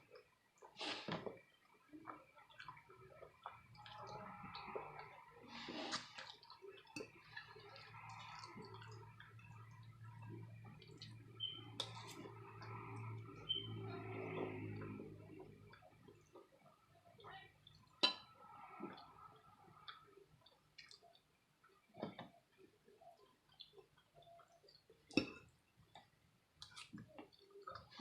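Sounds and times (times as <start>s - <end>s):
wet chewing: 2.0s - 16.5s.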